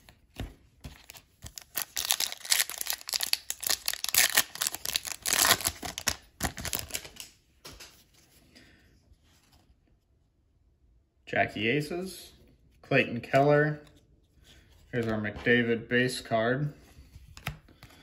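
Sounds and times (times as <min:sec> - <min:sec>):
foil wrapper tearing and crinkling: 0:01.4 - 0:07.2.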